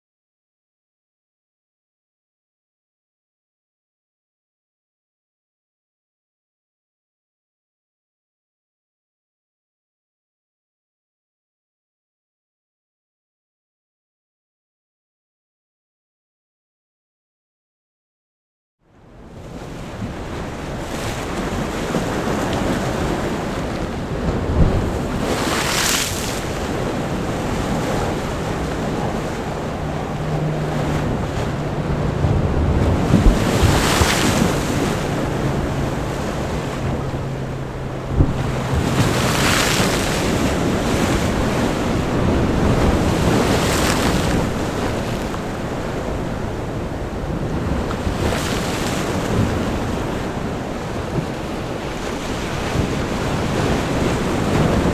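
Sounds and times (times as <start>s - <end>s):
waves breaking on rocks: 19.5s - 54.9s
road traffic hum: 26.7s - 39.9s
low thuds: 26.8s - 39.3s.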